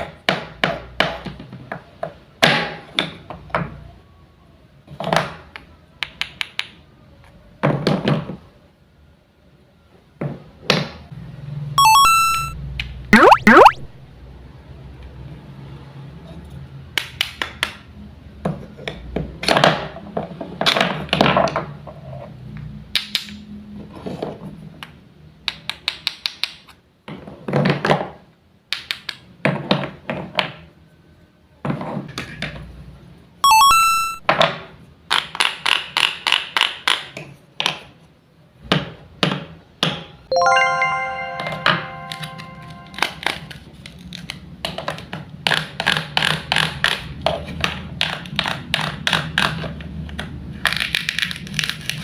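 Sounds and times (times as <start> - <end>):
short chiming ding: 40.3 - 43.3.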